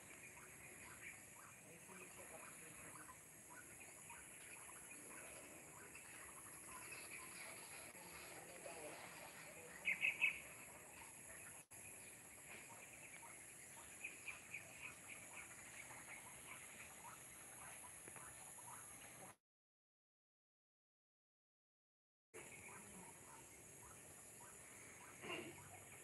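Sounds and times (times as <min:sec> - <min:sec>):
high-pitched background hiss: 0:00.0 - 0:19.3, 0:22.4 - 0:26.0
birds chirping: 0:00.0 - 0:19.4, 0:22.4 - 0:26.0.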